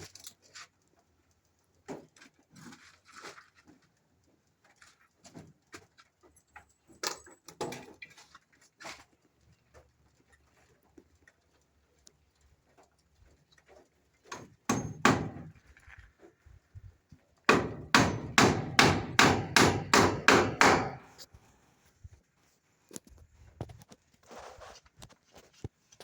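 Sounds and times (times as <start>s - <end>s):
hammer strikes: 14.4s - 15.5s, 17.5s - 21.1s.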